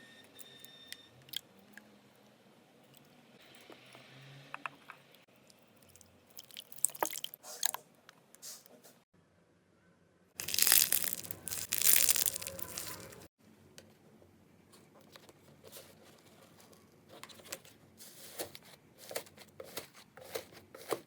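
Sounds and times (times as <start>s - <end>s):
slime crackling and clicking: 10.4s - 13.2s
dense crunching: 10.4s - 13.3s.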